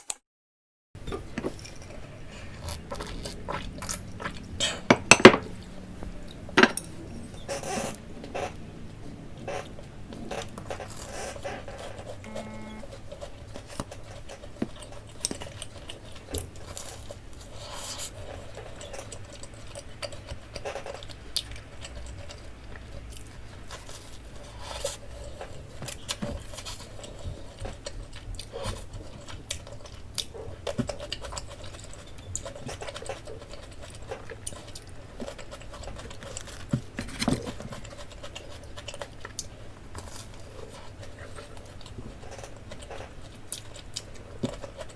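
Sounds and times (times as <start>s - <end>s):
hands handling food and tableware: 1.0s - 8.5s
low steady hum: 1.0s - 44.9s.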